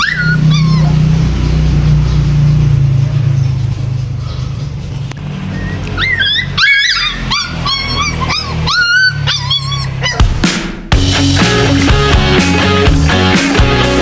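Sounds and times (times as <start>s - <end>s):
puppy whining and yipping: 0.0s - 1.3s, 5.3s - 10.4s
background music: 9.9s - 14.0s.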